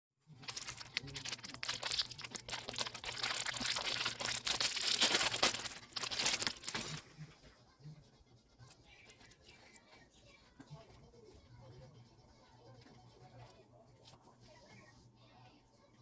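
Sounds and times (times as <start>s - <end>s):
plastic packaging crinkling: 0.3s - 7.1s
plastic tearing: 0.4s - 7.1s.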